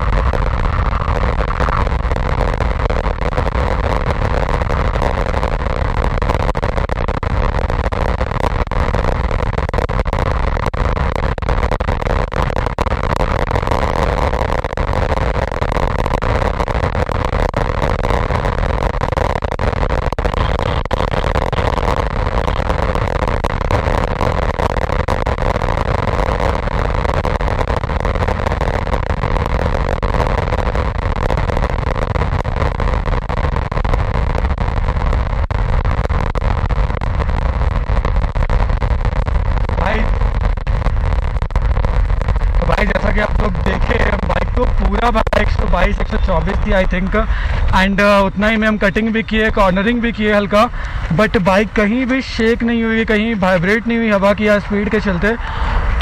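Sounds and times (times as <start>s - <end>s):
wind rush: 39.6s - 53.9s, 54.6s - 56.0s.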